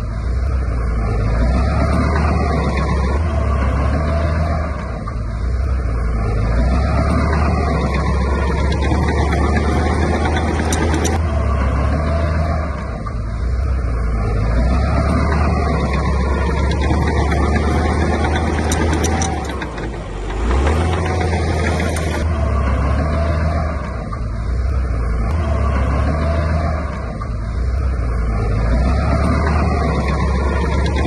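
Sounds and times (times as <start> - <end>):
heavy diesel engine running: 0.0 - 31.0
faint clicks: 4.8 - 11.2, 12.8 - 22.3, 26.9 - 31.0.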